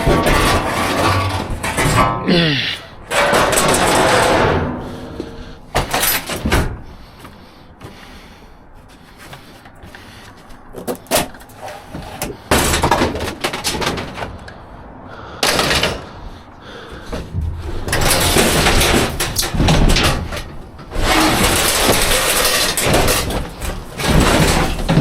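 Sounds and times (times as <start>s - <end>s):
scrap metal clanking in dumpster: 0.0s - 7.0s, 10.8s - 14.5s, 15.3s - 16.3s, 17.1s - 25.0s
rummaging through metal: 0.0s - 7.2s, 10.6s - 14.8s, 15.4s - 16.3s, 17.0s - 25.0s.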